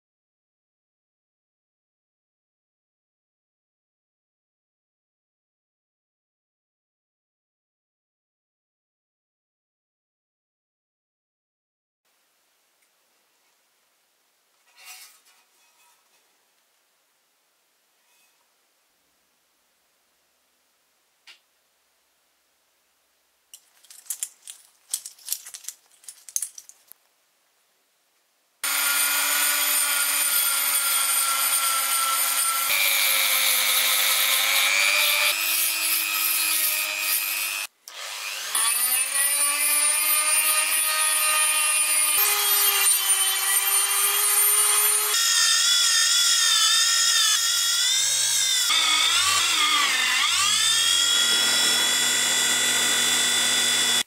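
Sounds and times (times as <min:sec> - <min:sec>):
hand scraping: 0:23.6 - 0:27.0
electric power tool whining: 0:28.6 - 0:54.0.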